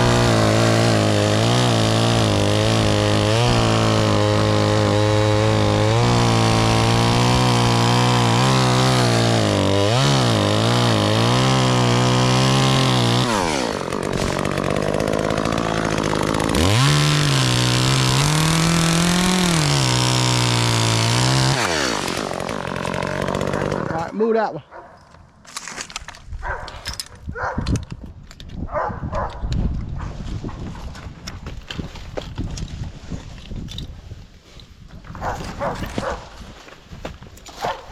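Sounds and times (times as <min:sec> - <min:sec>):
chainsaw revving and idling: 0:00.0 - 0:24.6.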